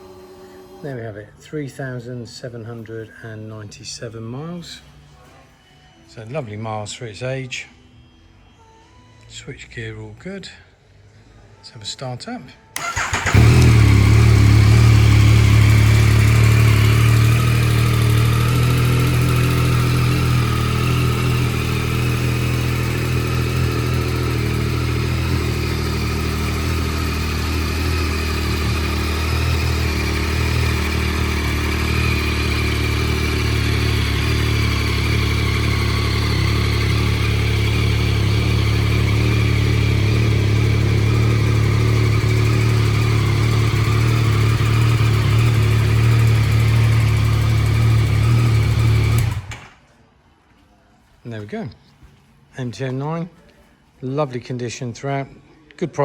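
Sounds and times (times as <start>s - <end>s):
motorcycle engine idling: 12.8s - 49.7s.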